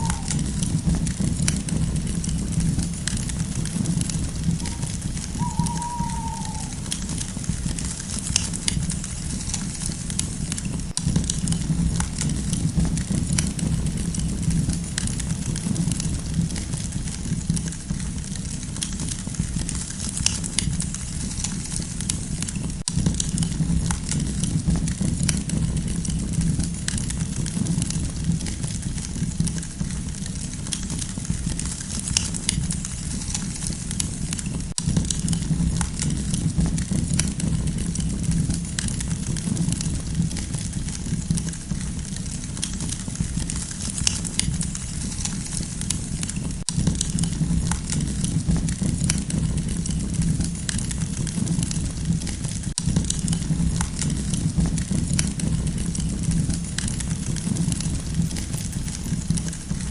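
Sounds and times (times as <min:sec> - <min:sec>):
campfire crackles and pops: 0:00.0 - 0:18.0, 0:52.8 - 0:59.9
low fire rumble: 0:00.0 - 0:22.2, 0:34.8 - 0:59.9.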